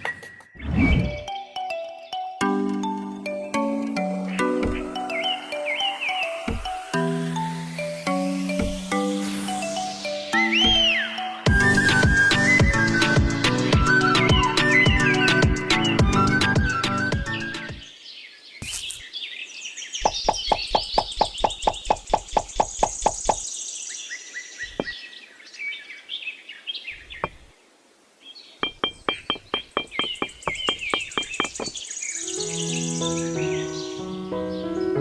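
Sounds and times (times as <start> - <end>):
music: 0.0 - 17.8, 32.2 - 35.0
birds chirping: 0.0 - 27.6, 28.2 - 35.0
rapid knocks: 28.6 - 31.8.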